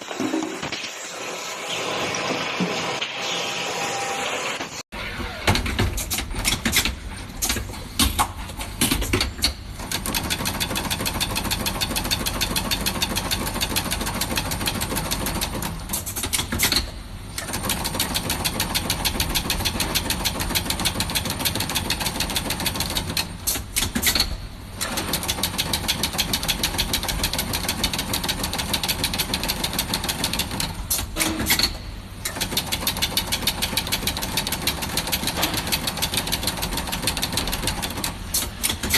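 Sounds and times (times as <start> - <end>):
factory machinery clattering: 15.4 - 38.9.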